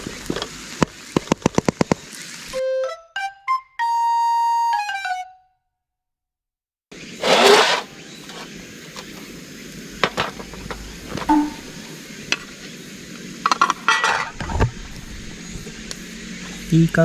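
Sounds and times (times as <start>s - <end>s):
background hiss: 7.0s - 17.0s
metal cookware scraping: 7.2s - 8.5s, 10.0s - 11.8s, 13.5s - 14.5s
metal cookware clinks and knocks: 13.5s - 14.4s.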